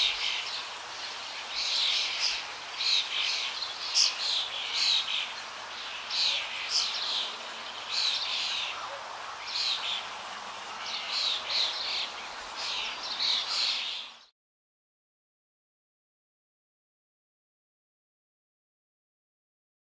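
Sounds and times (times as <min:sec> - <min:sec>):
songbirds chirping: 0:00.0 - 0:14.3
steady background hiss: 0:00.0 - 0:14.3.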